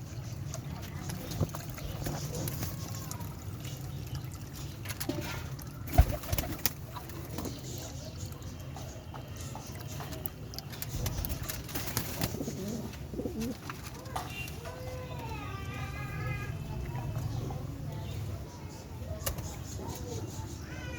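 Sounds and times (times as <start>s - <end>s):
pigeons cooing: 10.8s - 13.8s.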